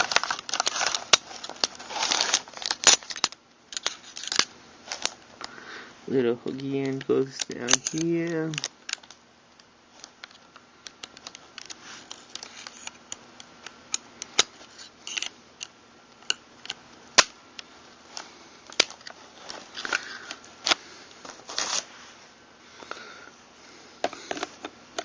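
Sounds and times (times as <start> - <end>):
metal gun parts clicking: 6.6 - 9.1.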